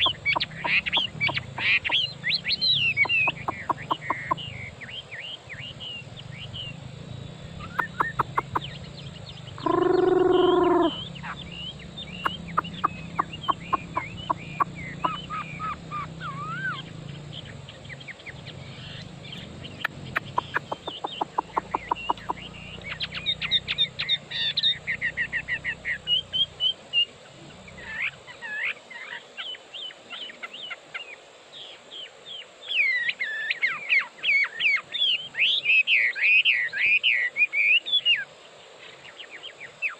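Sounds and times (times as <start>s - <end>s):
bird singing varied song: 0.0s - 39.9s
louder lower bird call: 9.5s - 16.9s.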